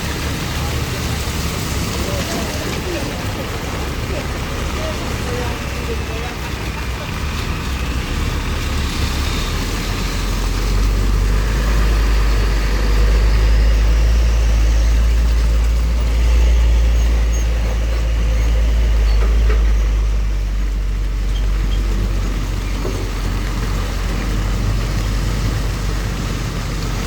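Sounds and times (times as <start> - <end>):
heavy trucks driving past: 0.0 - 27.0.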